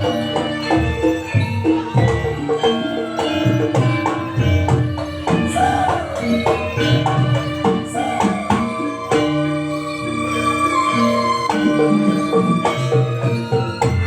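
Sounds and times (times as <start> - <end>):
hand drum strokes: 0.0 - 9.6
wavering melody line: 0.0 - 14.0.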